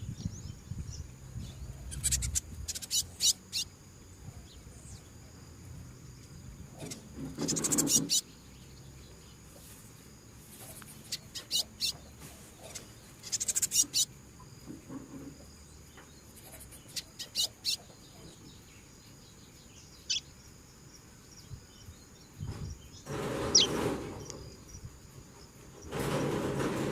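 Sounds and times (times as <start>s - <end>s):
bird chips: 1.8s - 3.7s, 9.0s - 14.2s, 16.0s - 18.4s, 22.8s - 24.8s.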